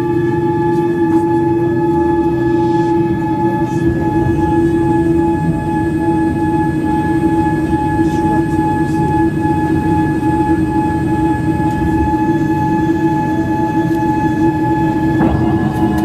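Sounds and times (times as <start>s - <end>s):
jet engines from inside cabin: 0.0s - 16.0s.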